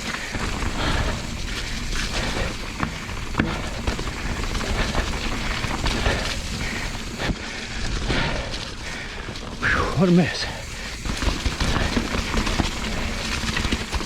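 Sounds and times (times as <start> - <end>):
bike knocking on rocks: 0.0 - 7.2, 10.6 - 14.0
bike tyre rush on mud: 0.0 - 14.0.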